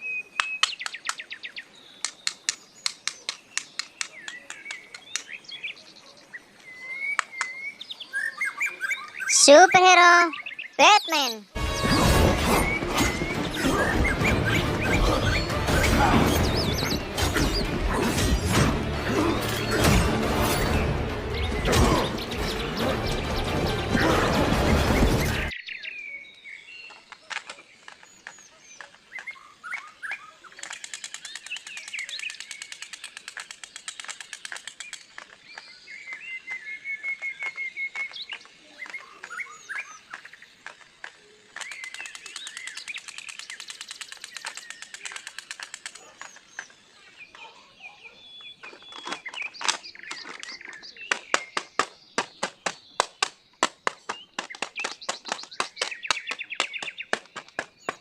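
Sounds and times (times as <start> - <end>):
small birds chirping: 0.0 - 58.0
sharp clicks and crackles: 30.6 - 36.2, 40.1 - 46.8, 48.6 - 58.0.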